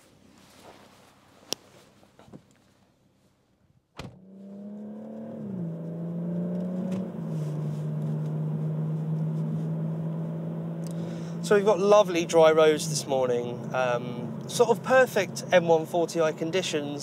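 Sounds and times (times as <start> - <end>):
car engine droning in cabin: 4.0 - 17.0.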